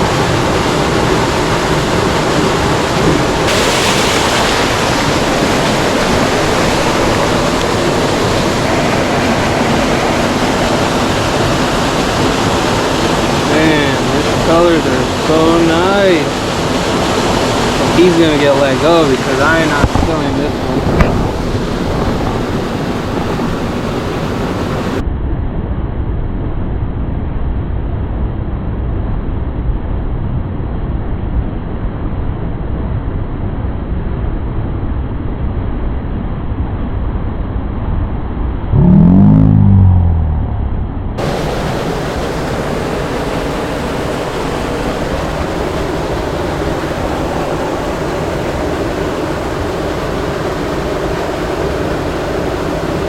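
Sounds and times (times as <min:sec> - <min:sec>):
creek water rushing: 0:00.0 - 0:25.0, 0:41.2 - 0:53.0
low gliding sound: 0:38.7 - 0:41.4.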